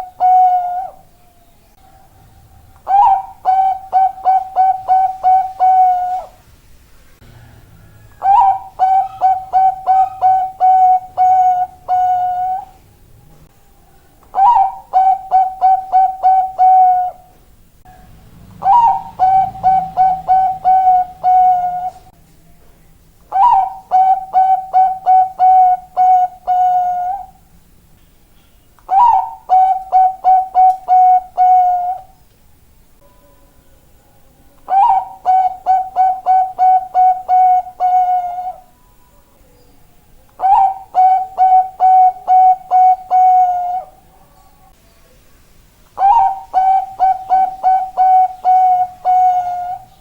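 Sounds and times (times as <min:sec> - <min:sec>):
dove cooing song: 0:00.0 - 0:06.4, 0:07.2 - 0:12.9, 0:13.8 - 0:22.2, 0:23.3 - 0:27.5, 0:28.8 - 0:32.2, 0:34.5 - 0:39.3, 0:40.2 - 0:44.8, 0:46.0 - 0:50.0.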